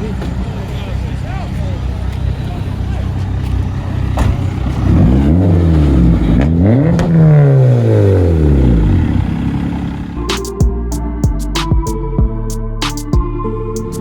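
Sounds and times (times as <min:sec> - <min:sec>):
car engine revving: 0:00.0 - 0:10.7.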